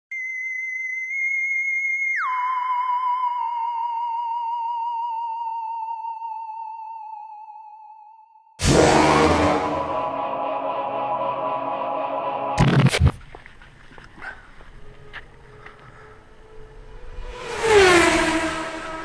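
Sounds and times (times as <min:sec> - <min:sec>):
theremin-like electronic tone: 0:02.0 - 0:12.6
loud music: 0:08.6 - 0:12.6.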